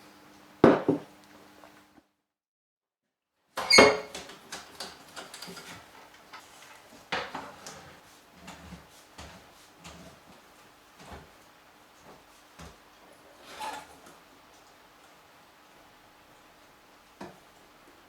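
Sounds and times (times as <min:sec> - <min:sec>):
sharp knocks on wood: 0:00.6 - 0:01.1.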